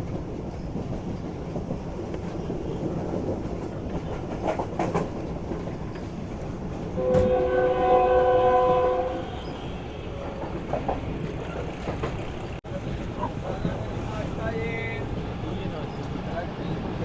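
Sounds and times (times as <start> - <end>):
train wheels rumbling: 0.0 - 17.0
train horn blast: 7.0 - 10.1.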